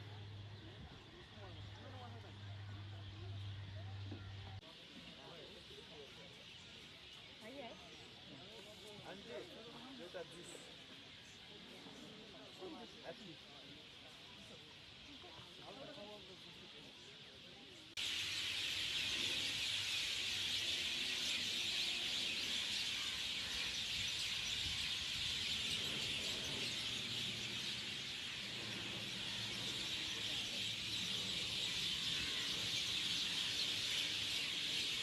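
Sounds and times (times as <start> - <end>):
chorus of birds chirping: 0.0 - 35.0.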